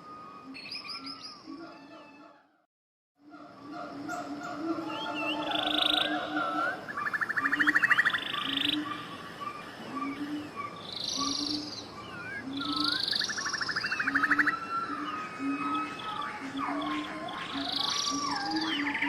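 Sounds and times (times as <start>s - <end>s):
birds singing: 0.0s - 2.6s, 3.2s - 19.0s
low repeated bird call: 0.0s - 2.6s, 3.2s - 19.0s.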